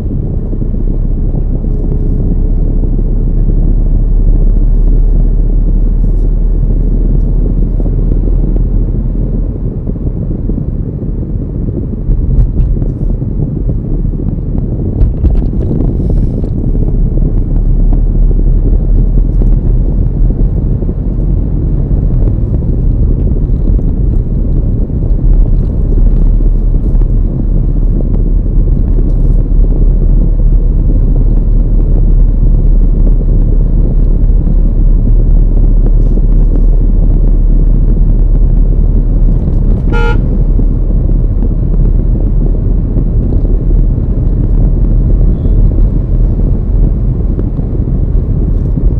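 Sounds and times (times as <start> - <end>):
car driving on road: 0.0 - 48.9
car horn toot: 39.8 - 40.4.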